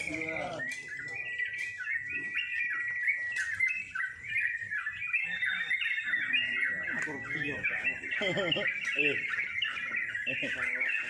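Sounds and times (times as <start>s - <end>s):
bulbul singing: 0.0s - 11.0s.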